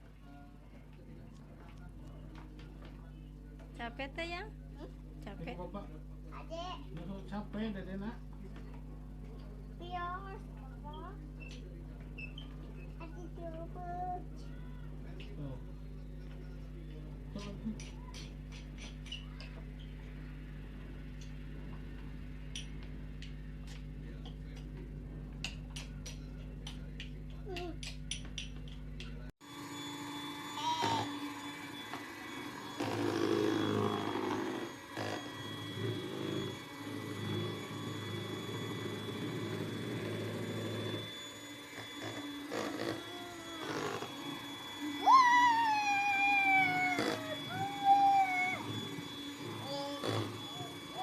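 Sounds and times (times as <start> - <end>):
low motor hum: 10.4 - 51.0.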